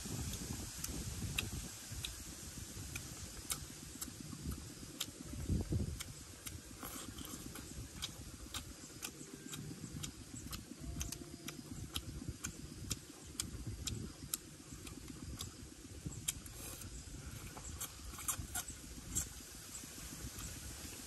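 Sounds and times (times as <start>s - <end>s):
person chewing food: 2.8s - 15.6s.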